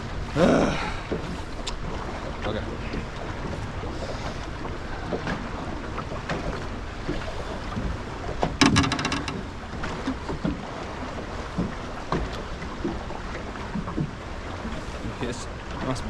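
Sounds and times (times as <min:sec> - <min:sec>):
water noise: 0:00.0 - 0:16.0
light knocks on boat: 0:04.6 - 0:10.7, 0:11.5 - 0:14.8.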